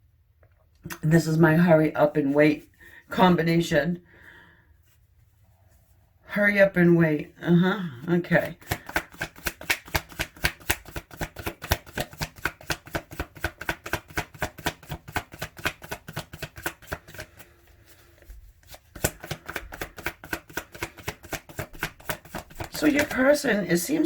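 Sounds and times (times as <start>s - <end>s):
cards being shuffled: 8.4s - 24.0s.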